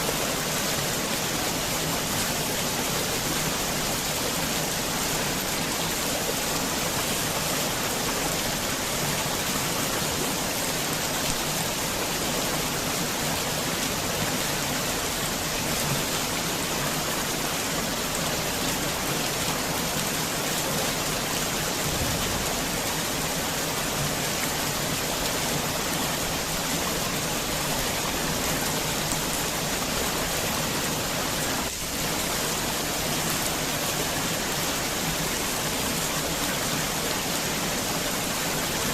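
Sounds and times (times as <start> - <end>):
heavy rain falling: 20.7 - 38.9.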